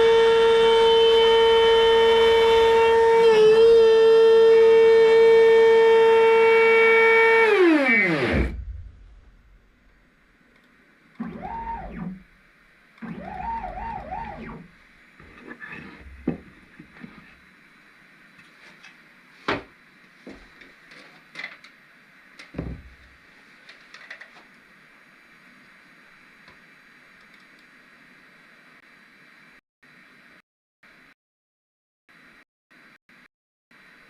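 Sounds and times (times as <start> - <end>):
stepper motors whining: 0.0 - 9.6, 11.2 - 12.4, 13.0 - 16.4.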